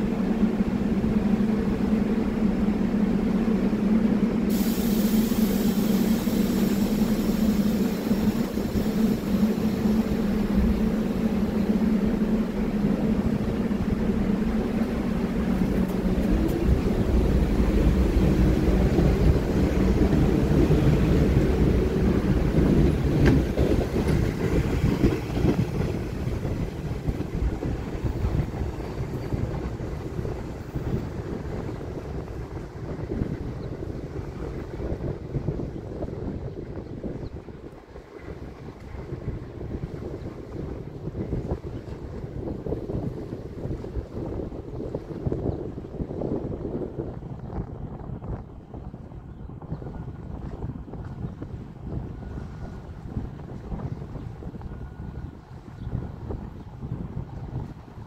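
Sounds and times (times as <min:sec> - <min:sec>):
train cars humming: 0:00.0 - 0:58.0
wheels rumbling on rails: 0:00.0 - 0:58.0
high hiss: 0:04.5 - 0:10.6.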